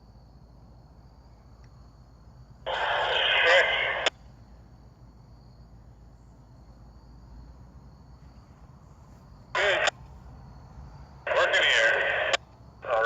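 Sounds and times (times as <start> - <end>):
diesel locomotives idling: 0.0 - 13.0
scanner radio burst: 2.7 - 4.1, 9.6 - 9.9, 11.3 - 13.0.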